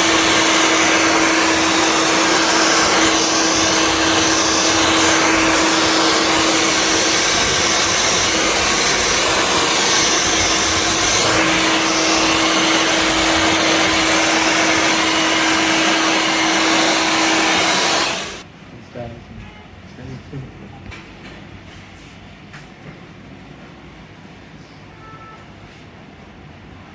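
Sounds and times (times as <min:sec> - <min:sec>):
hair dryer blowing: 0:00.0 - 0:18.4.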